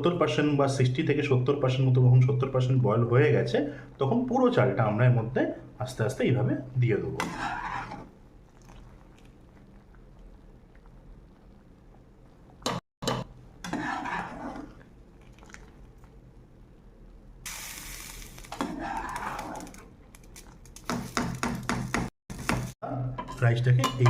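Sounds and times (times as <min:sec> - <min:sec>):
short hiss: 0:17.5 - 0:18.6
metal utensils clinking on pots: 0:23.2 - 0:24.0.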